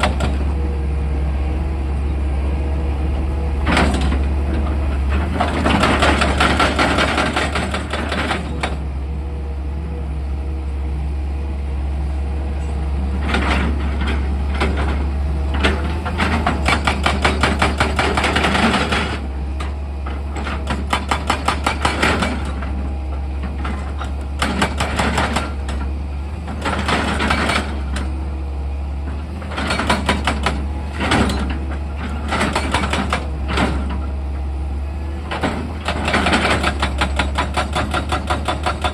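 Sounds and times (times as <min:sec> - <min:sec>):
hydraulic hammer pounding rock: 0:00.0 - 0:00.5, 0:03.6 - 0:08.9, 0:13.2 - 0:28.2, 0:29.2 - 0:34.1, 0:35.2 - 0:38.9
excavator engine humming: 0:00.0 - 0:38.9.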